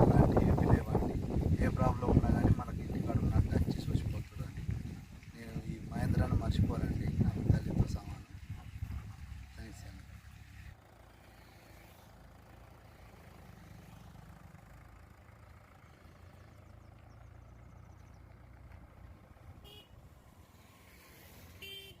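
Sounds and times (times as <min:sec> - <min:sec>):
faint low engine rumble: 0:00.0 - 0:22.0.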